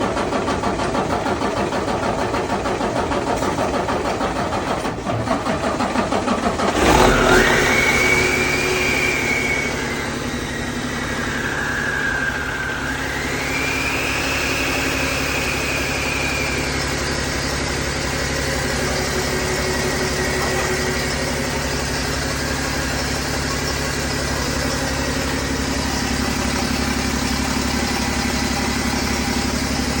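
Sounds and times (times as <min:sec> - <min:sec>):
diesel engine cranking: 0:00.0 - 0:30.0
diesel engine idling: 0:00.0 - 0:30.0
high whine: 0:07.2 - 0:28.1.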